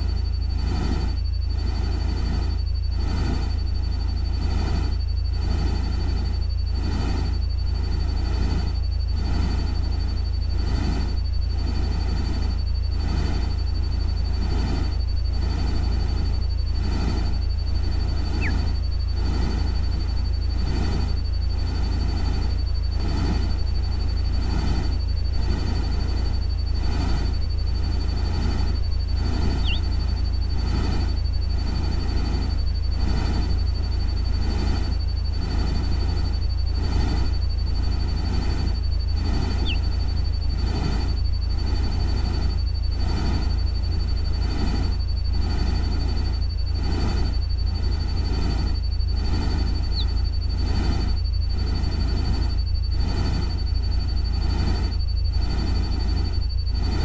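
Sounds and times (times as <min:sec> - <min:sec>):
steady low rumble: 0:00.0 - 0:57.0
thin steady high tone: 0:00.0 - 0:57.0
short falling chirp: 0:18.3 - 0:18.7, 0:29.6 - 0:29.9, 0:39.5 - 0:39.9.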